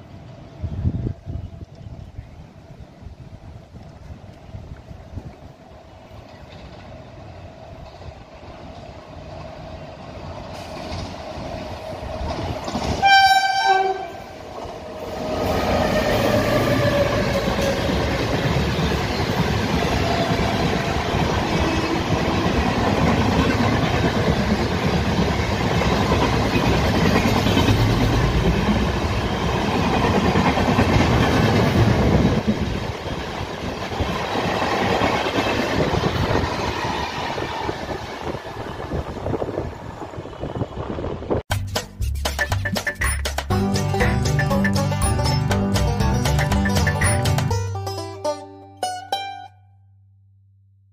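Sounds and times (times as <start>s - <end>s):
locomotive horn blast: 13.0s - 14.4s.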